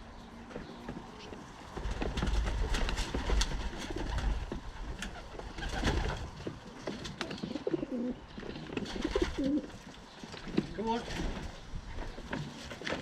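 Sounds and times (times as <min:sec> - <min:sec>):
pigeons cooing: 0:00.0 - 0:10.2.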